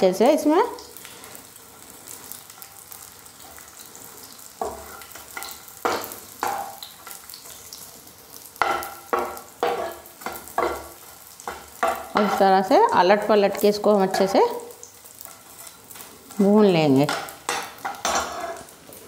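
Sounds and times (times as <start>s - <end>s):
gum sizzling in hot ghee: 0.0s - 19.0s
metal spatula scraping pan: 17.1s - 18.8s.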